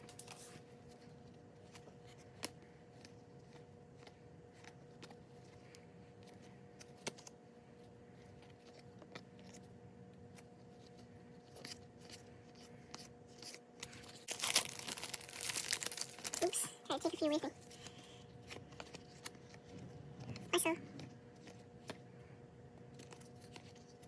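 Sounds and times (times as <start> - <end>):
faint hum: 0.0 - 24.0
trading cards rustling: 10.7 - 22.0.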